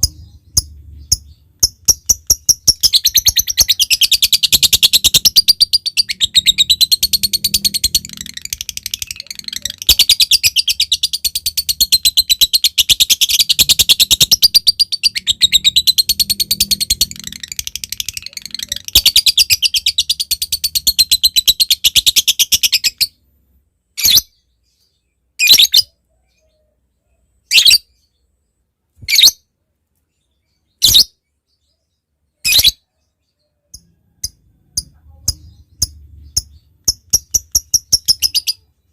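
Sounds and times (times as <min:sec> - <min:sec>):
bird chattering trill: 0:00.0 - 0:23.1, 0:33.7 - 0:38.7
bird sharp chirps: 0:00.0 - 0:23.3, 0:30.1 - 0:38.9.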